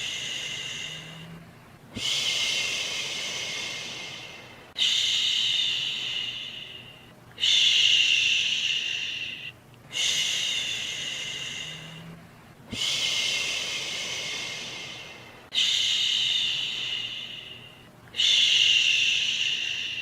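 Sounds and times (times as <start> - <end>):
person shushing: 0.0 - 1.4.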